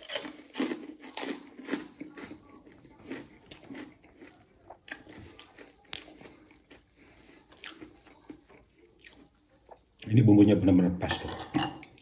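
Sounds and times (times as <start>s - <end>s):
crisp cracker crunches: 0.0s - 8.6s
person chewing food: 0.0s - 10.2s, 11.6s - 12.0s.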